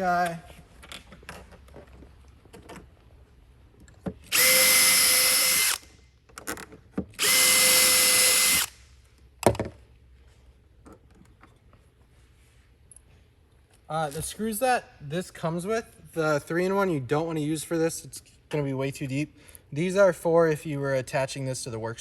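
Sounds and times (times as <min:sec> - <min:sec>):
power drill driving screws: 0:04.3 - 0:05.9, 0:07.2 - 0:08.8.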